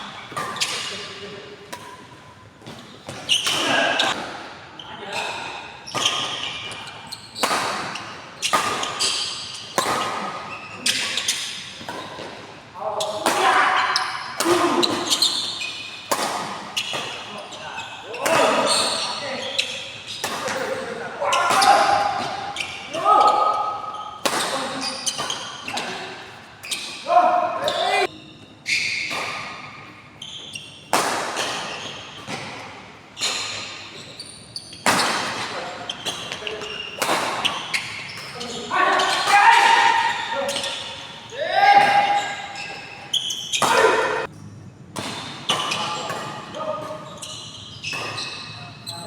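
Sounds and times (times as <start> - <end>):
shoe squeaks: 0.0 - 1.2, 2.6 - 4.2, 4.8 - 12.2, 13.8 - 16.1, 16.7 - 30.9, 31.5 - 32.4, 33.2 - 44.5, 45.2 - 49.0
rackets hitting shuttlecock: 1.7 - 4.5, 5.9 - 12.4, 14.4 - 17.4, 20.1 - 23.0, 29.0 - 29.9, 30.8 - 33.8, 34.8 - 41.1, 44.9 - 47.1, 47.9 - 48.4.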